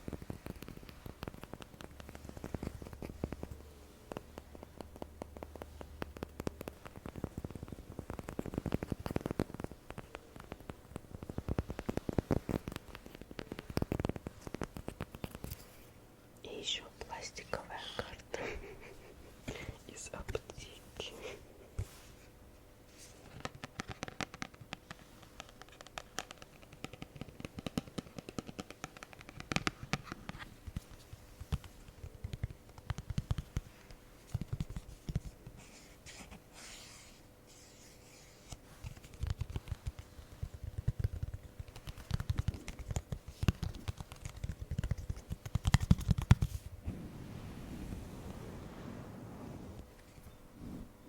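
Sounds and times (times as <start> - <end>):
tapping and scratching on objects: 0.0 - 15.8, 23.1 - 36.5, 37.5 - 46.7.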